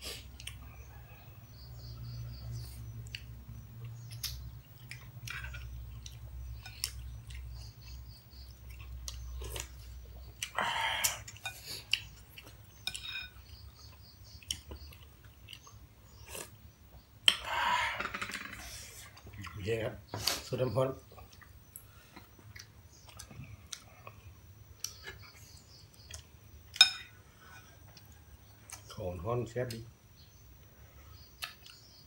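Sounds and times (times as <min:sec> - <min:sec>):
wet mouth clicks of chewing: 0:21.2 - 0:24.2, 0:31.3 - 0:31.9.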